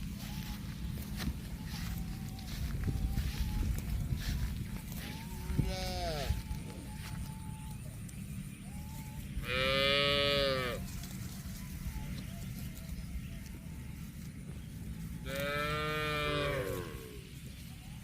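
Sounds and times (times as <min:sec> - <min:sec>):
cow mooing: 0:09.4 - 0:10.8, 0:15.3 - 0:17.2.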